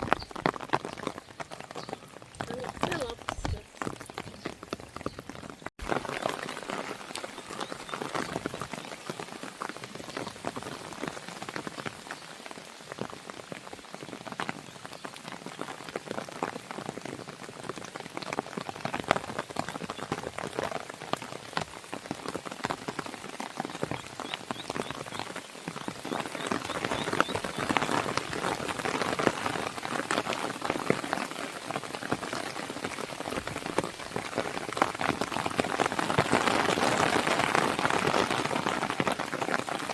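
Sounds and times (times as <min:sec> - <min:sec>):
wood fire crackling: 0:00.0 - 0:09.3
rain pattering on a window: 0:00.0 - 0:39.9.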